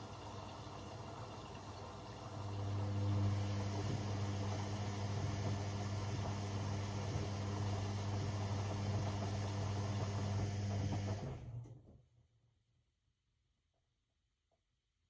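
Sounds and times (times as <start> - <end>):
washing machine motor humming: 0.0 - 11.4.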